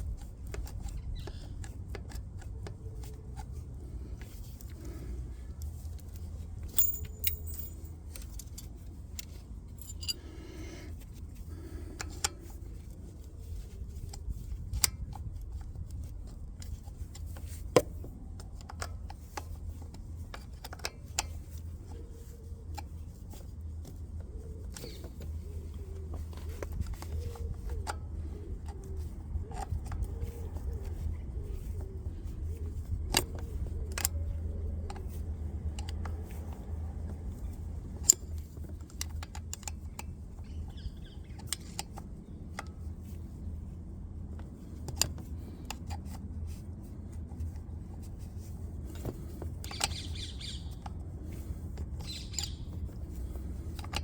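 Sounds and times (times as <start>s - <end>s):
metallic clicks of spanner: 0.0s - 3.6s, 5.6s - 11.1s, 11.9s - 12.9s, 32.7s - 36.7s, 37.5s - 42.8s, 48.9s - 54.0s.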